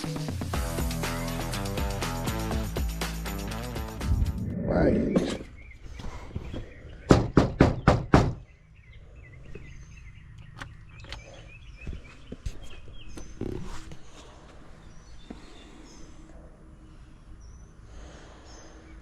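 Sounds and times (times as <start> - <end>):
birds chirping: 3.5 - 19.0
knocks on a door: 7.1 - 8.4.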